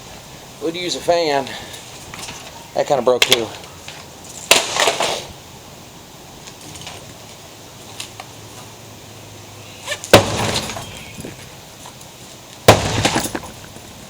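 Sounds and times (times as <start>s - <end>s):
sledgehammer smashing tv: 10.1s - 11.0s, 12.7s - 13.6s
breaking glass: 10.1s - 11.4s, 12.7s - 13.8s
debris clattering: 10.1s - 11.5s, 12.7s - 14.0s.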